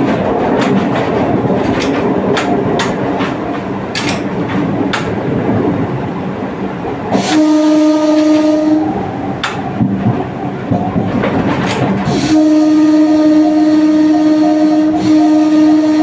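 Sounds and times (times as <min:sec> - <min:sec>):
train wheels clacking over rail joints: 0:00.0 - 0:16.0
train horn: 0:07.1 - 0:09.6, 0:12.1 - 0:16.0.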